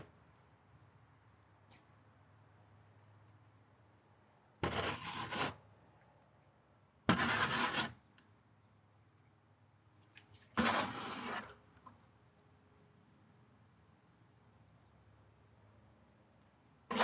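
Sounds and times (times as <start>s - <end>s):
tool scraping concrete mix: 4.6s - 5.6s, 7.1s - 8.0s, 10.6s - 11.6s.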